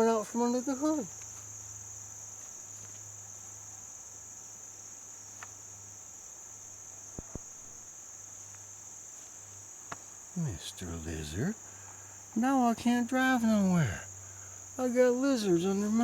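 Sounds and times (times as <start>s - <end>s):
insect chorus trilling: 0.0s - 16.0s
faint ticks: 5.3s - 5.6s, 8.4s - 8.7s, 9.8s - 10.2s.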